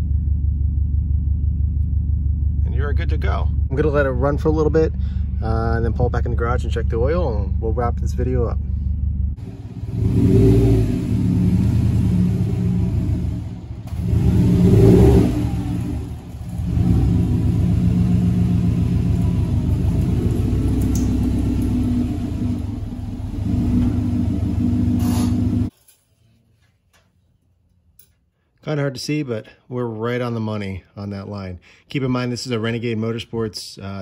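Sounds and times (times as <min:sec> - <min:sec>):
car engine rumbling: 0:00.0 - 0:25.7.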